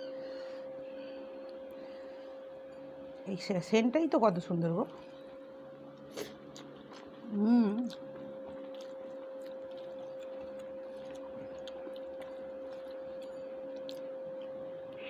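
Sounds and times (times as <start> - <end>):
high-pitched hum: 0.0 - 15.0.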